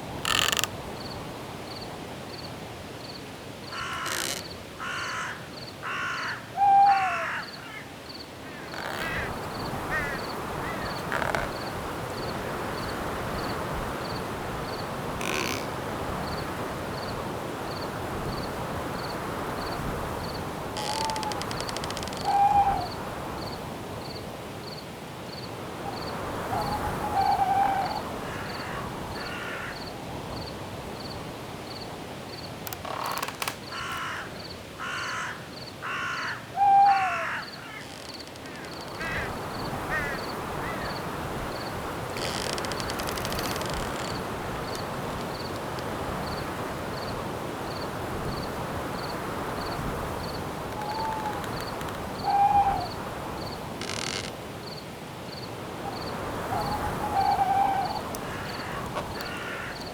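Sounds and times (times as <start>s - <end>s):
wind through trees: 0.0s - 59.9s
cricket chirping: 0.2s - 59.9s
harsh bird calls: 3.7s - 7.9s, 8.5s - 11.7s, 20.8s - 23.0s, 32.8s - 41.1s, 50.7s - 53.0s, 56.5s - 59.9s.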